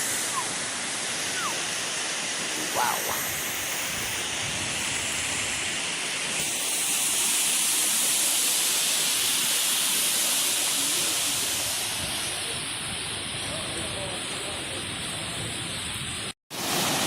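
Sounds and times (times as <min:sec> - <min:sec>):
waterfall rushing: 0:00.0 - 0:12.8, 0:16.5 - 0:17.0.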